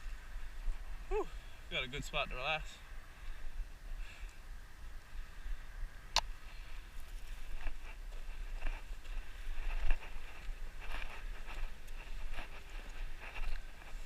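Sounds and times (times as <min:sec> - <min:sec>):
wind rumble on microphone: 0:02.8 - 0:14.0
scuffs on loose rock and gravel: 0:06.5 - 0:14.0.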